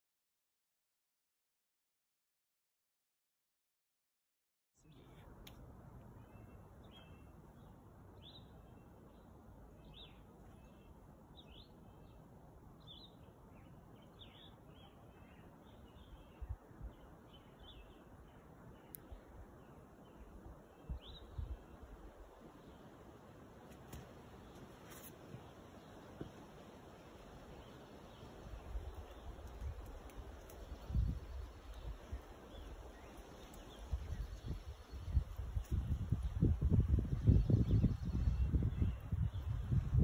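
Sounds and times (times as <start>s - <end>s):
small birds chirping: 4.8s - 40.0s
steady outdoor hiss: 4.8s - 40.0s.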